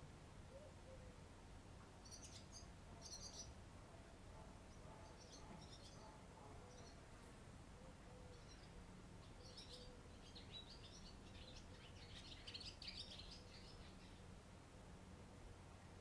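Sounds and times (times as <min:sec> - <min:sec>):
low steady background noise: 0:00.0 - 0:16.0
small bird chirping: 0:02.0 - 0:03.6.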